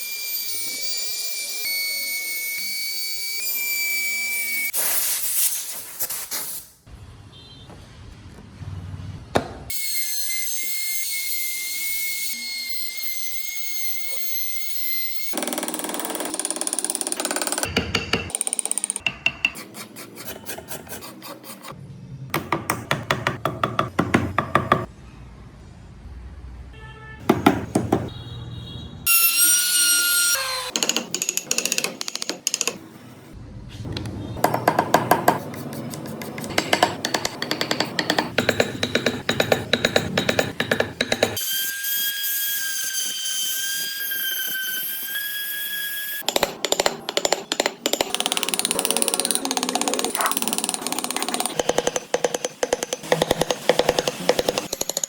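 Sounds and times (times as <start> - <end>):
rasp scraping wood: 19.5 - 21.8.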